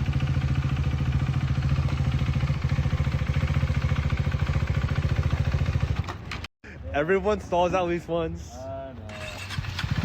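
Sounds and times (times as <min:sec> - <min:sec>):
motorcycle engine idling: 0:00.0 - 0:06.5.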